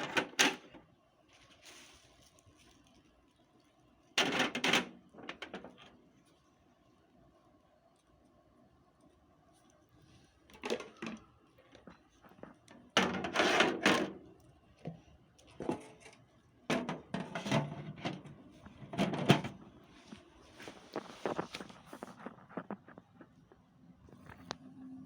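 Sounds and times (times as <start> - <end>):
objects being handled: 9.5 - 24.6.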